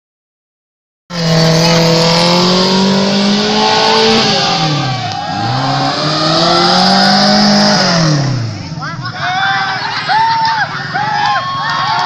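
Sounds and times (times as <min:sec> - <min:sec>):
car engine revving: 0:01.1 - 0:09.2.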